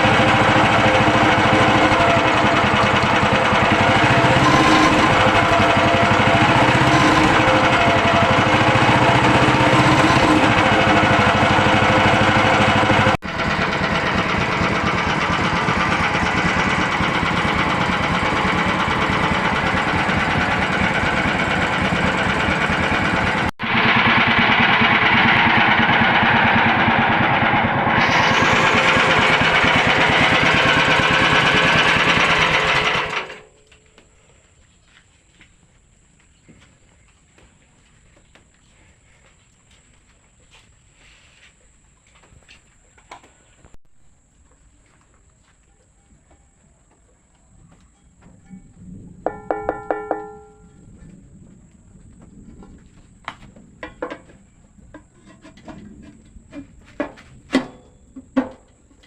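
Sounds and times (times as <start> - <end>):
engine running with rattly beat: 0.0 - 33.5, 48.9 - 51.2.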